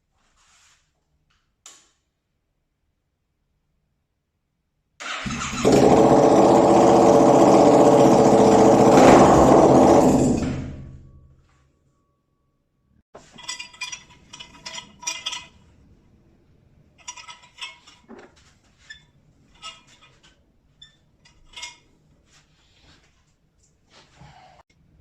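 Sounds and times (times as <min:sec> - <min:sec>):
metal hardware clinking: 0:13.2 - 0:15.8, 0:17.0 - 0:21.9.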